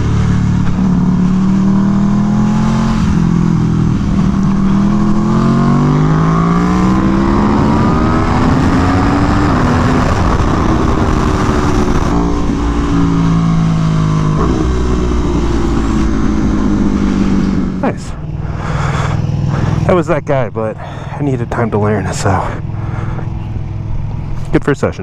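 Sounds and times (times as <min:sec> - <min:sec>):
motorcycle engine accelerating hard: 0:00.0 - 0:25.0
wind rush: 0:02.9 - 0:19.9.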